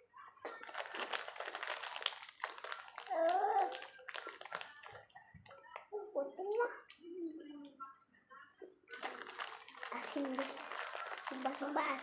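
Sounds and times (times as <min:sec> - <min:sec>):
plastic wrapper crinkling: 0:00.4 - 0:05.1, 0:08.9 - 0:12.0.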